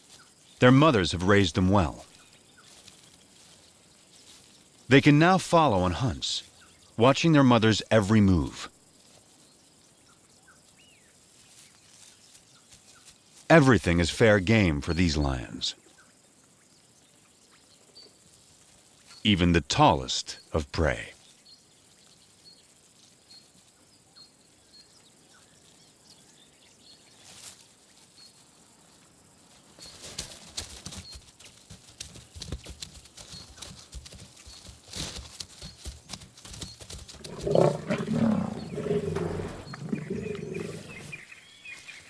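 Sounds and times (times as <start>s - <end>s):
scuffling in brush: 2.1s - 4.9s, 11.2s - 13.5s, 27.0s - 42.0s
faint chirping: 36.6s - 42.0s
lions growling and snarling: 37.2s - 41.4s.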